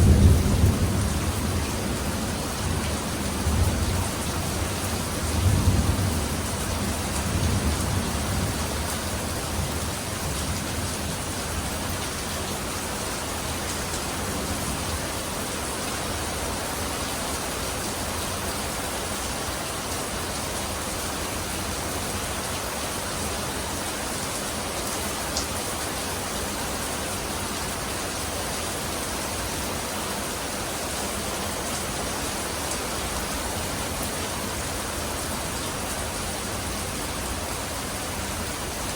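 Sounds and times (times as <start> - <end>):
thunder rumbling: 0.0 - 8.9
heavy rain falling: 0.0 - 38.9.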